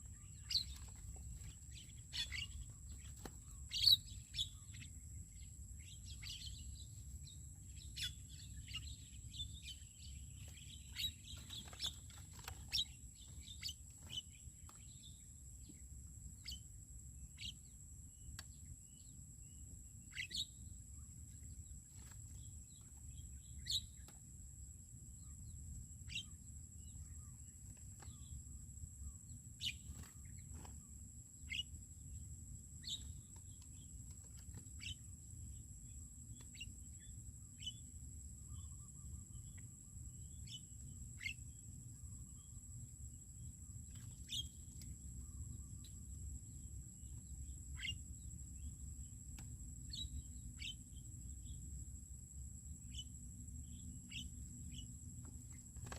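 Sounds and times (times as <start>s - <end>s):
birds chirping: 0.0s - 15.8s, 29.0s - 31.8s, 42.4s - 51.6s, 52.8s - 55.9s.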